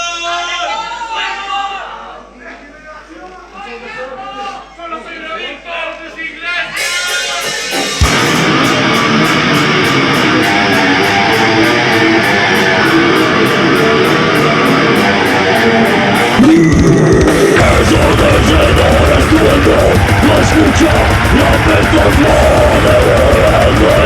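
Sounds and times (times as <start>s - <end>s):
distorted electric guitars: 6.8s - 24.0s
heavy metal band playing: 6.8s - 24.0s.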